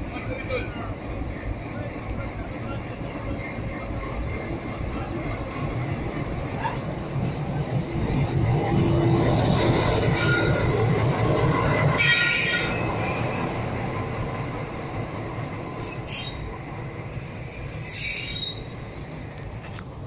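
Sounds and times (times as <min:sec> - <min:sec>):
locomotive engine and wheels rumbling: 0:00.0 - 0:20.0
wheel squeals on rails: 0:10.0 - 0:10.7, 0:11.9 - 0:13.8, 0:15.8 - 0:16.5, 0:17.1 - 0:18.9.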